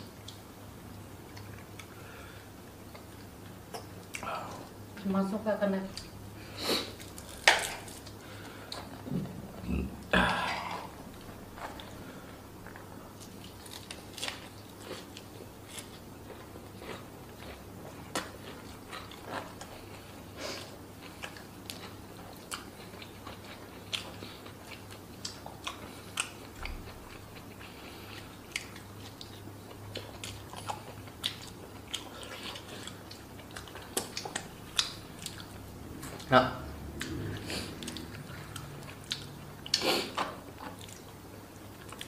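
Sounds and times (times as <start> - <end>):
low steady hum: 0.0 - 42.0
chewing and crunching fried fish: 11.2 - 42.0.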